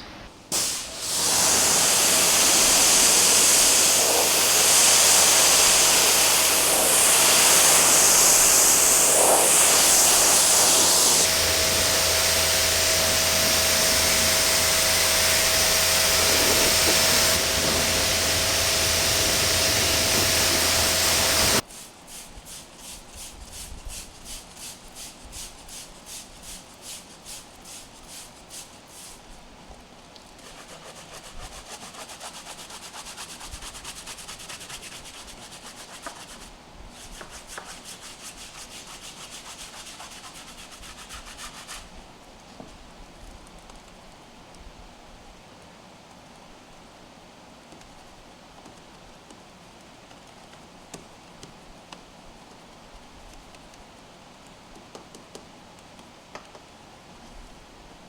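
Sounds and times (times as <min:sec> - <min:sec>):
pressure washer spraying water: 0:00.0 - 0:21.6.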